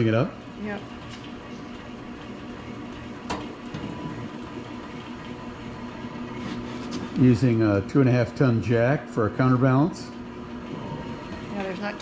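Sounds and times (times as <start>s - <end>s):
honey extractor whirring hum: 0.0s - 12.0s.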